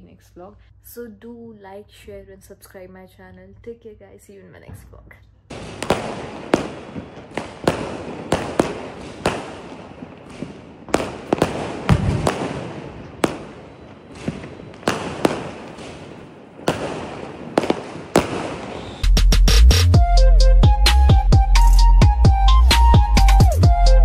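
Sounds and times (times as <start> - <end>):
fireworks bangs: 4.6 - 19.4
fireworks crackle: 5.5 - 19.2
deep firework boom: 5.5 - 19.3.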